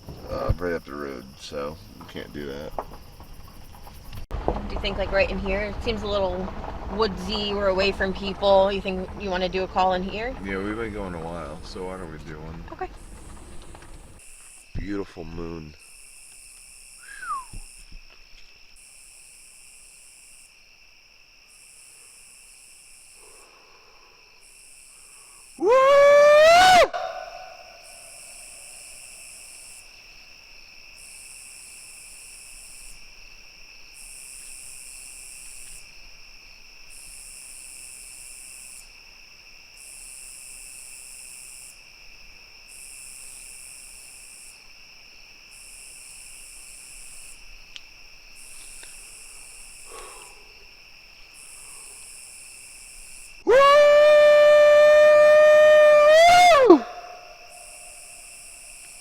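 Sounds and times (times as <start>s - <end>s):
night insects trilling: 0.0s - 59.0s
loud long howl: 25.6s - 28.1s, 53.5s - 58.0s.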